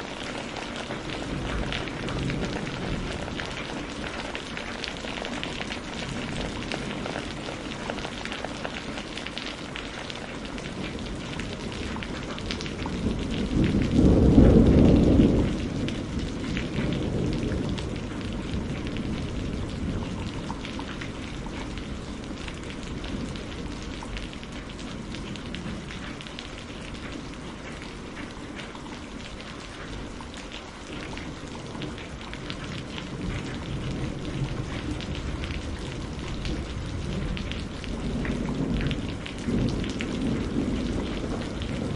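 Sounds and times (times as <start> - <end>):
steady rain: 0.0 - 41.9
thunder rolling: 10.9 - 24.0, 32.6 - 41.9.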